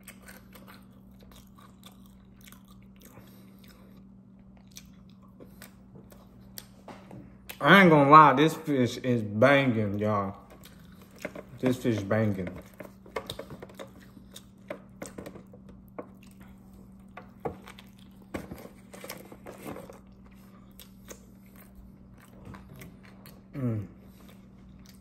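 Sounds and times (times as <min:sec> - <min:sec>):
person chewing: 0:00.0 - 0:07.6, 0:09.9 - 0:25.0
steady low hum: 0:00.0 - 0:25.0
person humming mm: 0:23.6 - 0:24.0.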